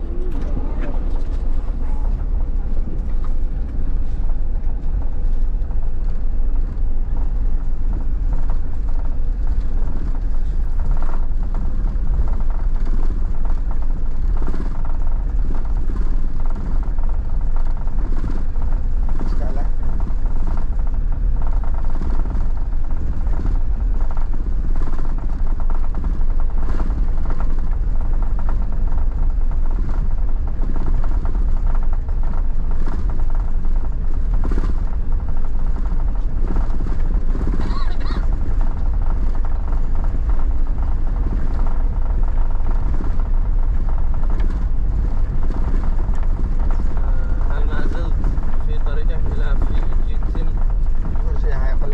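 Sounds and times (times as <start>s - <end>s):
car engine and tyre noise: 0.0s - 51.9s.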